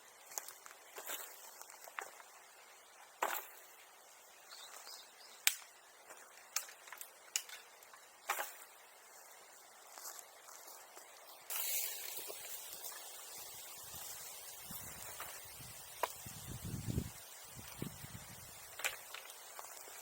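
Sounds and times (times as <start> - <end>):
twigs snapping and cracking: 5.4 - 8.6.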